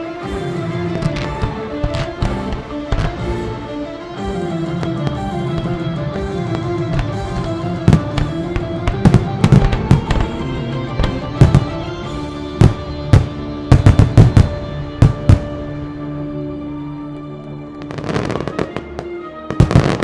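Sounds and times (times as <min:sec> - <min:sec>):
music playing: 0:00.0 - 0:20.0
firework bangs: 0:06.5 - 0:15.6.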